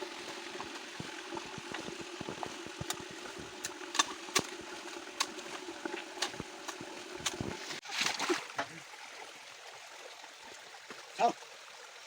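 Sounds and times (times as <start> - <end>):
stream trickling: 0.0 - 12.0
short splashes and knocks: 0.3 - 8.8.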